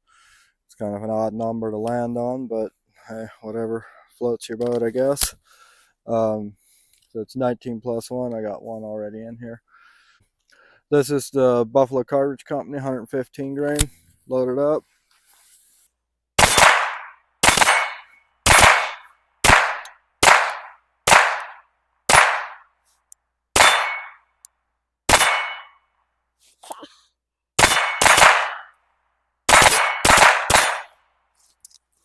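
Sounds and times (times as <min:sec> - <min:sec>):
pistol shots: 0:16.4 - 0:22.7, 0:23.6 - 0:24.2, 0:25.1 - 0:25.7, 0:27.6 - 0:28.7, 0:29.5 - 0:30.9.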